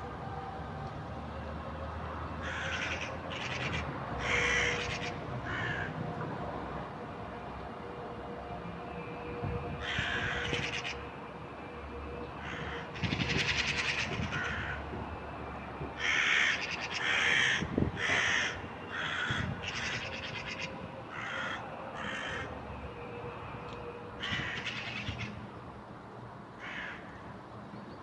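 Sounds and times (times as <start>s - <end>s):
crows cawing: 2.4s - 6.0s, 9.8s - 11.1s, 12.4s - 14.8s, 16.0s - 22.6s, 24.2s - 25.4s, 26.6s - 27.3s.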